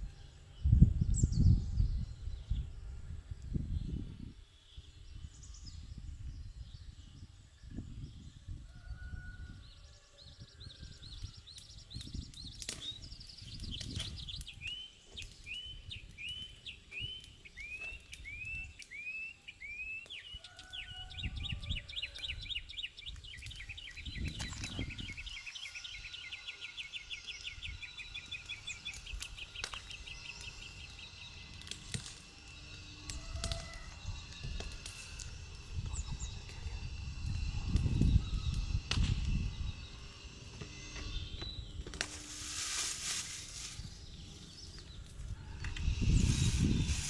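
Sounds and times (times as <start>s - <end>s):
songbird whistling and trilling: 4.8s - 42.0s.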